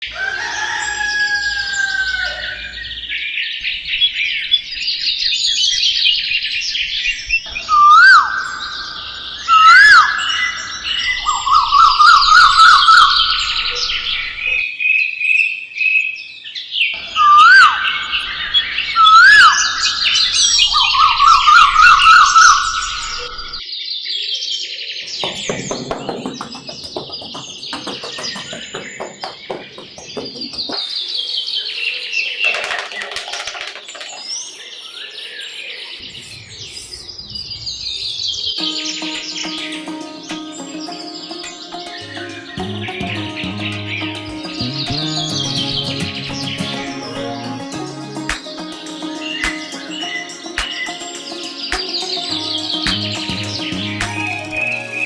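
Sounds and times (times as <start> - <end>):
songbirds chirping and singing: 30.7 - 36.2, 40.7 - 55.0.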